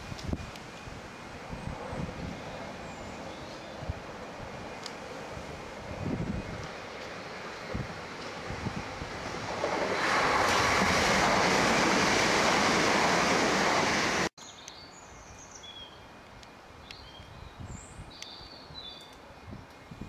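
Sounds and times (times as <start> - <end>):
train wheels rushing on rail: 0.0 - 14.3
birds chirping: 2.3 - 4.0.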